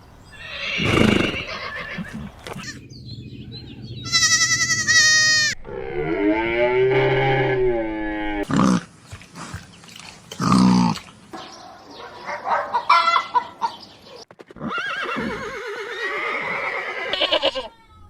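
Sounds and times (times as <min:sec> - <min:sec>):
farm animals calling: 0:00.3 - 0:02.8, 0:04.0 - 0:08.8, 0:10.4 - 0:17.7
horse whinnying: 0:00.3 - 0:02.8, 0:14.5 - 0:17.7.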